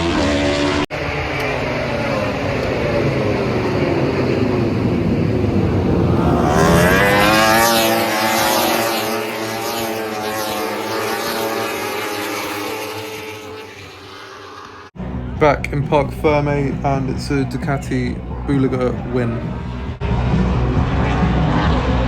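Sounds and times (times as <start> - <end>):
racing motorcycles passing: 0.0 - 15.3.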